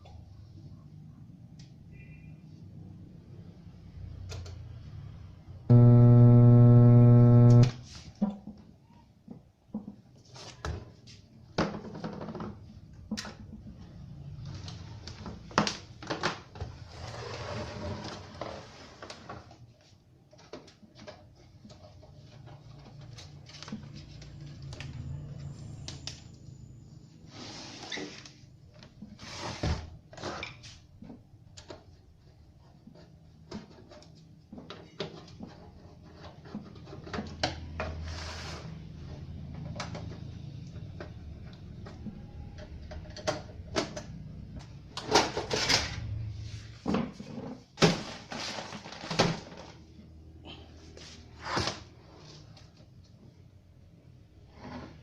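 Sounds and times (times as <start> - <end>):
steady low hum: 5.7 - 7.8.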